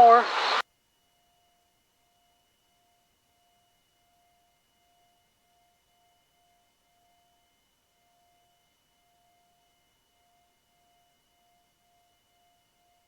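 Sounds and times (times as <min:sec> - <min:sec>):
faint electronic tone: 0:00.0 - 0:00.6.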